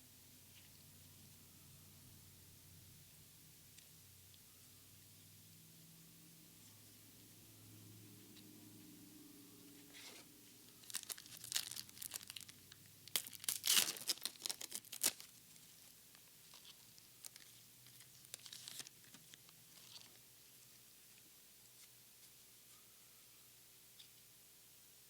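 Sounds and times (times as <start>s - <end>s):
foil wrapper tearing and crinkling: 10.8s - 15.4s, 16.2s - 20.1s.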